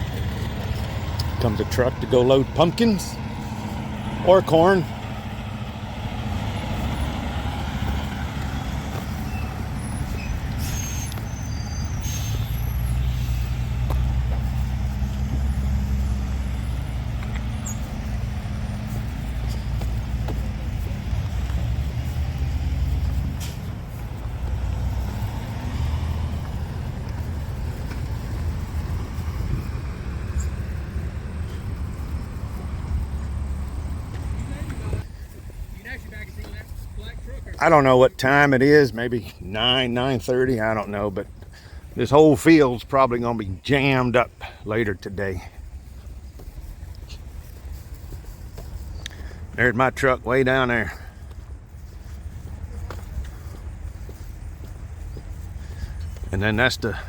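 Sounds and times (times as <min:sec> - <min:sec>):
diesel truck engine rumble: 0:00.0 - 0:57.0
short air hisses: 0:12.0 - 0:13.6.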